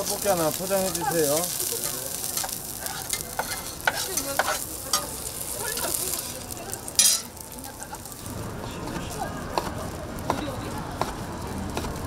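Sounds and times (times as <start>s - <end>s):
metal utensil clinking and scraping: 0.0s - 8.1s
food sizzling on a griddle: 0.0s - 12.0s.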